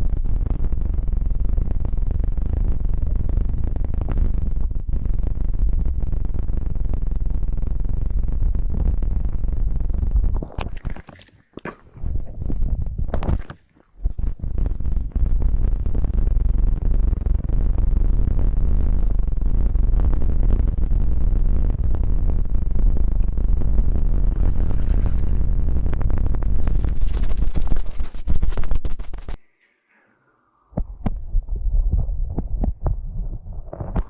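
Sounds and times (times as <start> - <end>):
crackly scrapes: 10.2 - 19.2, 24.2 - 29.6, 32.3 - 34.0
muffled rubbing on microphone: 26.2 - 29.4, 31.8 - 34.0.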